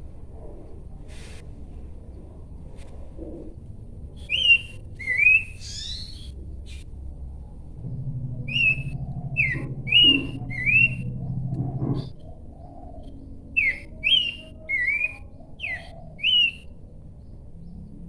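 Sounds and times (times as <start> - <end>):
low steady hum: 0.0 - 18.0
bird whistling sliding notes: 8.4 - 12.2.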